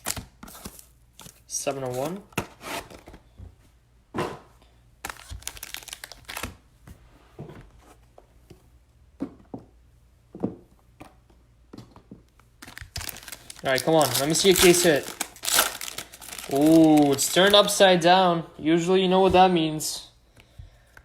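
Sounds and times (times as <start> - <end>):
cards and wrapping rustling: 0.0 - 3.3, 5.0 - 6.6, 12.5 - 17.9.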